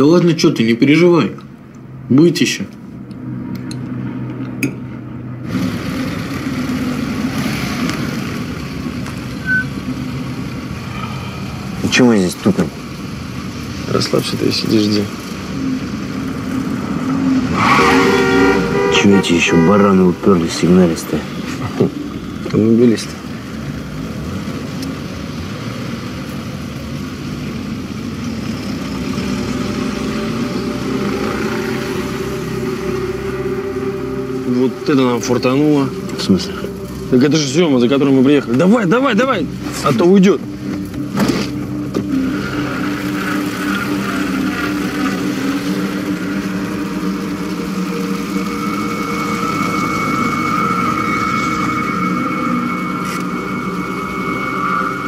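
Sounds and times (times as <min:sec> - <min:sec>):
car engine idling: 0:00.0 - 0:55.0
street traffic noise: 0:00.0 - 0:55.0
short high beep: 0:09.4 - 0:09.7.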